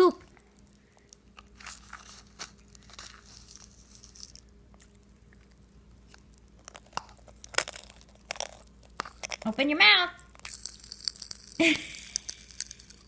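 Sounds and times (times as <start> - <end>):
candy crackling and clicking: 0.0 - 13.0
spoon scooping candy: 0.3 - 9.6, 10.2 - 13.0.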